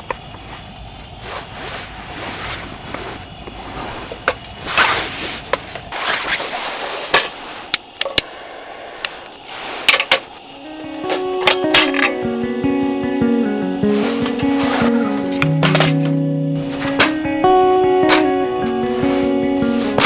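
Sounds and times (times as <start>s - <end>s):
rustling and scraping: 0.4s - 7.7s.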